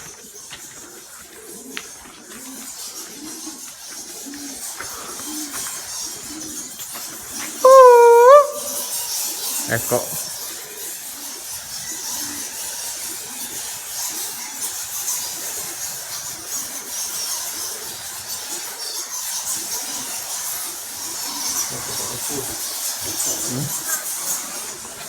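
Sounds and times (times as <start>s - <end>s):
bats squeaking: 7.6s - 8.9s.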